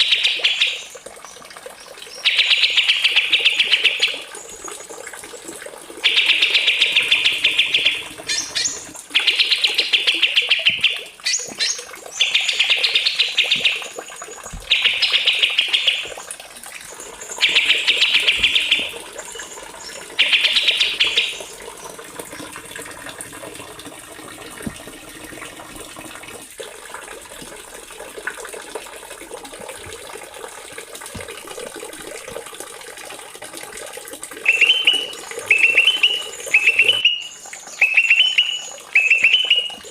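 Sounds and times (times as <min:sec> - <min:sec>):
songbird trilling: 0:06.1 - 0:16.1, 0:17.2 - 0:21.5, 0:34.5 - 0:39.8.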